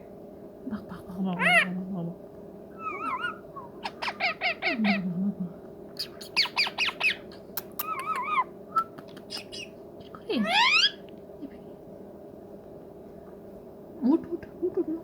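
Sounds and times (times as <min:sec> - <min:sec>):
parrot squawking: 0:01.4 - 0:01.7, 0:02.8 - 0:05.0, 0:06.0 - 0:09.7, 0:10.3 - 0:11.0
parrot warbling whistle: 0:02.8 - 0:04.8.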